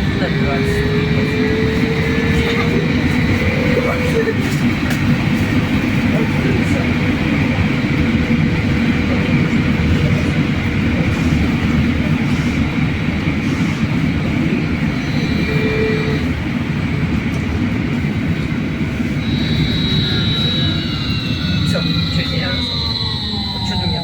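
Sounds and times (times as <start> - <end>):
trolleybus rumble and road noise: 0.0 - 24.0
high electric whine: 19.1 - 24.0.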